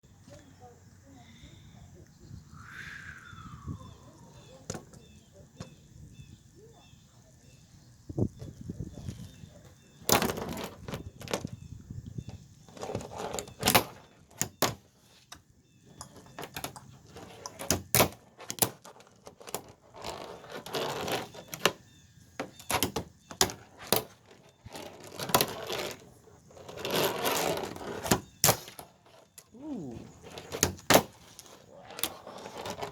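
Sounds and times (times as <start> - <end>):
small wheels rolling on plastic: 9.0 - 15.3, 16.0 - 32.9.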